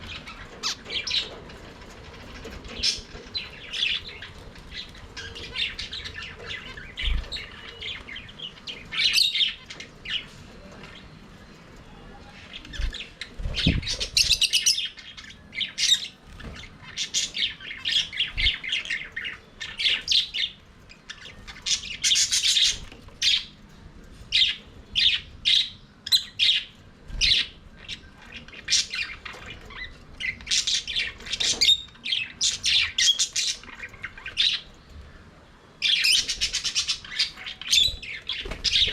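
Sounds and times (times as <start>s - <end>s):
budgerigars chirping: 12.4s - 23.5s, 24.4s - 34.7s, 35.8s - 38.9s.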